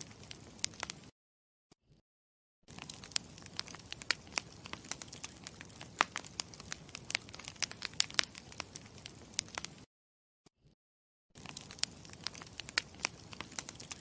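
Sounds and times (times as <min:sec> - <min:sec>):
campfire crackling and popping: 0:00.0 - 0:01.1, 0:02.7 - 0:09.9, 0:11.4 - 0:14.0
low fire hiss: 0:00.0 - 0:01.1, 0:02.8 - 0:09.8, 0:11.4 - 0:14.0.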